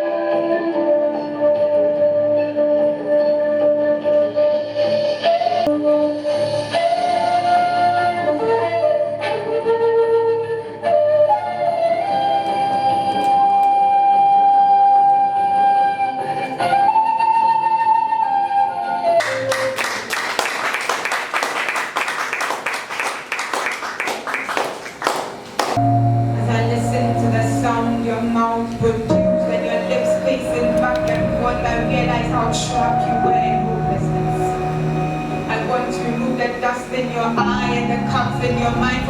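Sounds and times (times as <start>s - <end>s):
slow melody with held notes: 25.8s - 39.0s.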